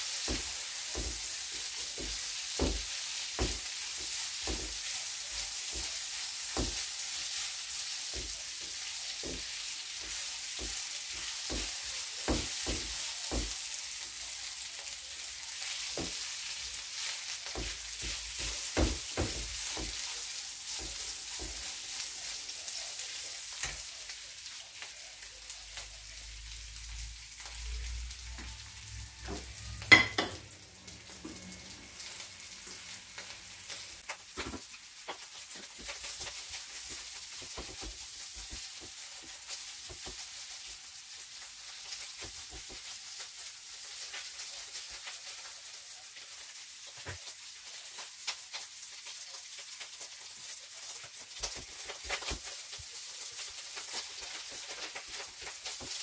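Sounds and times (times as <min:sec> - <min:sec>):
food sizzling in a frying pan: 0:00.0 - 0:56.0
spatula scraping a pan: 0:15.5 - 0:23.9.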